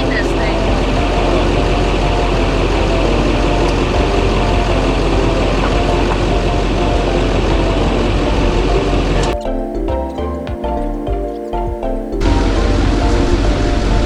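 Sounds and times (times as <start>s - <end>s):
diesel engine idling: 0.0s - 9.4s.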